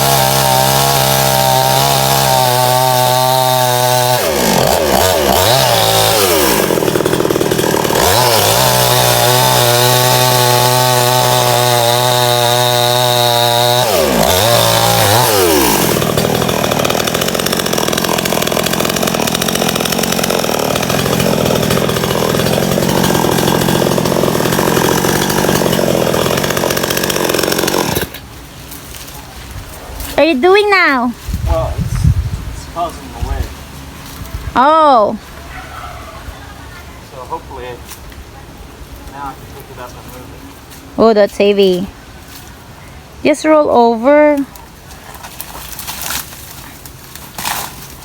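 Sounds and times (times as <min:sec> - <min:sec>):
chainsaw revving: 0:00.0 - 0:28.2
chainsaw cutting into log: 0:00.0 - 0:28.3, 0:45.3 - 0:48.0.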